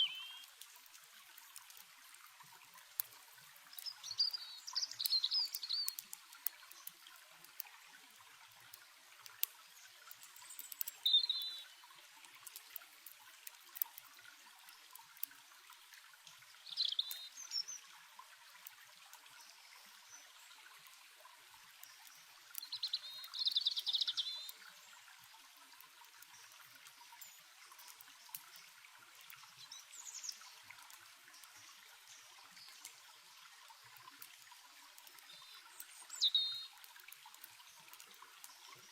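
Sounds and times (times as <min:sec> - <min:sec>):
bird chirping: 0:00.0 - 0:00.5, 0:03.8 - 0:06.0, 0:10.4 - 0:11.7, 0:35.3 - 0:36.7
stream running: 0:00.0 - 0:38.9
campfire crackling ticks: 0:00.2 - 0:38.9.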